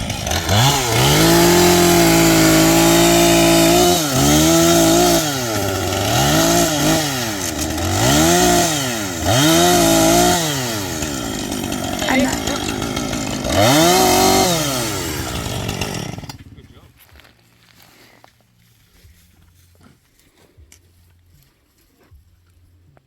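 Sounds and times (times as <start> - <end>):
chainsaw revving: 0.0 - 16.8.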